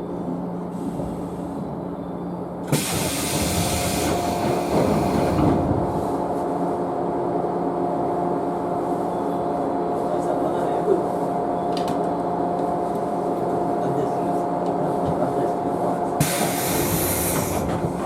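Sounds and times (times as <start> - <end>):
compressed air hiss: 2.7 - 4.2, 16.2 - 17.6.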